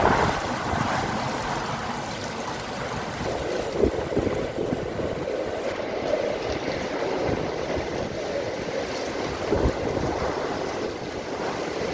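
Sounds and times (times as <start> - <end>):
strong wind gusting: 0.0 - 11.9.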